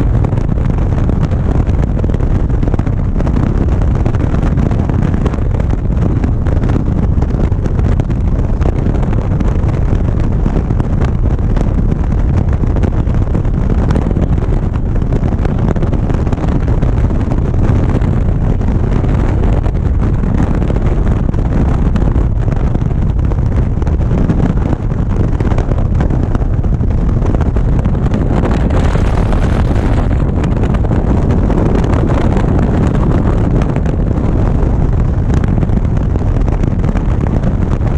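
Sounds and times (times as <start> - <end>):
wind buffeting microphone: 0.0 - 37.9.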